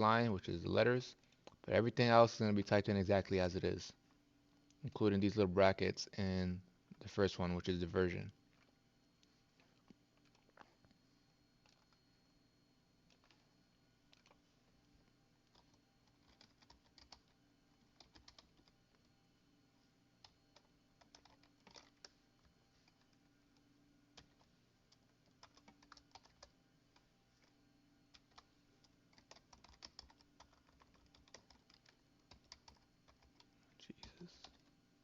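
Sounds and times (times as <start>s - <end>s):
typing on computer keyboard: 14.1s - 14.4s, 15.4s - 18.8s, 20.2s - 22.2s, 24.2s - 27.5s, 28.1s - 34.7s.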